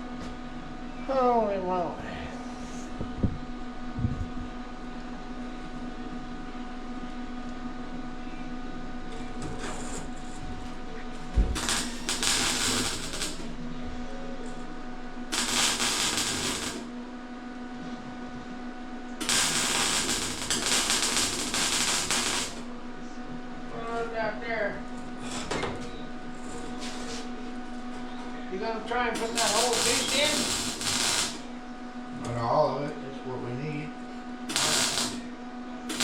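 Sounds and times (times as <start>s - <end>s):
machine hum: 0.0s - 36.0s
harsh hissing bursts: 29.2s - 31.5s.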